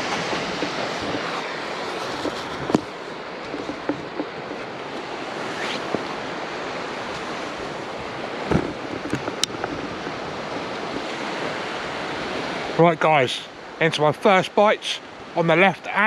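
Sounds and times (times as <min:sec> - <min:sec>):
faint knocks and clicks: 0:00.0 - 0:04.7, 0:08.5 - 0:11.1
sea waves washing onto beach: 0:00.0 - 0:16.0.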